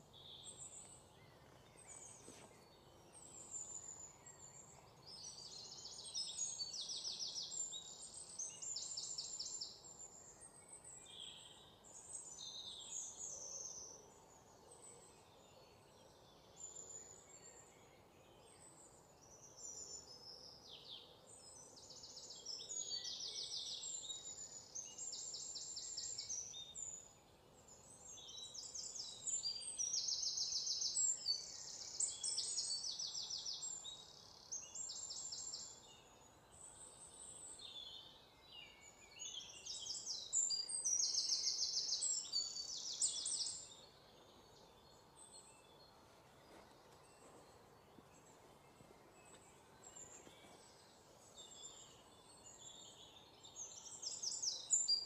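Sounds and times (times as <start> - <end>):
faint background noise: 0.0 - 55.0
songbirds singing and trilling: 0.0 - 55.0.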